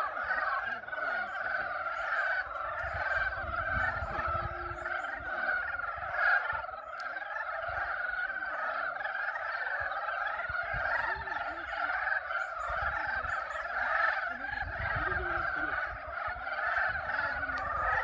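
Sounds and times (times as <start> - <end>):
frogs calling: 0.0 - 18.0.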